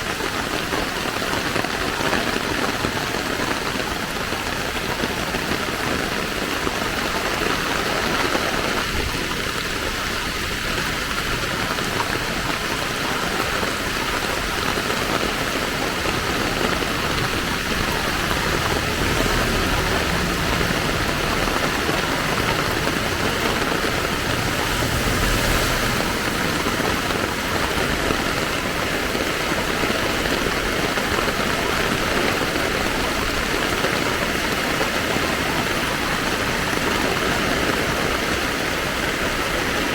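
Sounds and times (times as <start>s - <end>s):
steady rain falling: 0.0s - 39.9s
vehicle engines running: 9.8s - 37.3s
low rumble: 16.0s - 28.8s.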